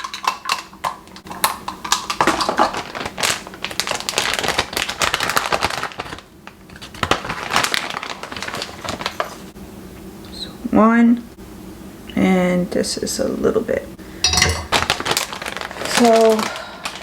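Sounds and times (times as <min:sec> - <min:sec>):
rustling and crinkling: 0:02.1 - 0:09.6, 0:14.3 - 0:17.0.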